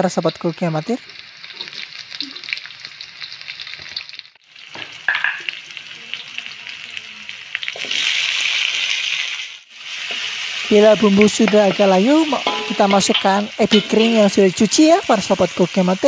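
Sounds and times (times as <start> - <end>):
food sizzling in hot oil: 0.0 - 16.0
metal spatula scraping wok: 9.9 - 15.4.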